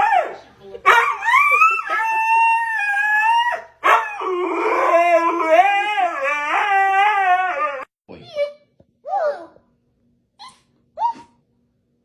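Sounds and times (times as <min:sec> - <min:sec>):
dog howling: 0:00.9 - 0:07.9.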